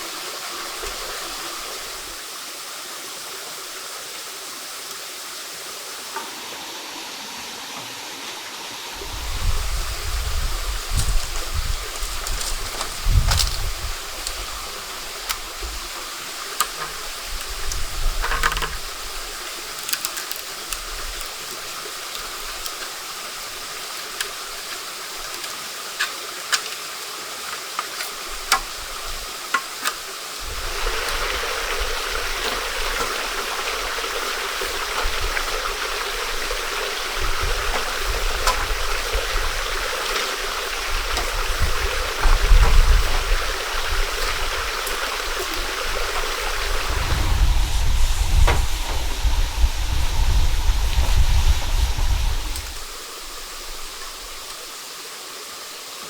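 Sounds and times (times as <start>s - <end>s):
stream water rushing: 0.0s - 56.0s
low thuds: 46.4s - 52.7s.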